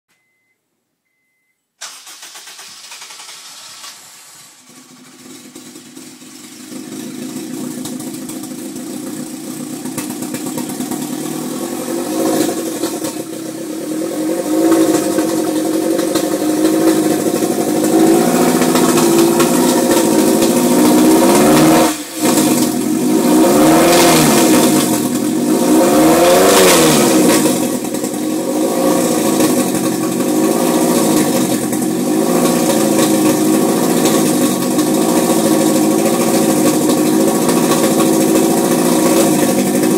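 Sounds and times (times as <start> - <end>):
car engine running rough: 1.8 - 39.9.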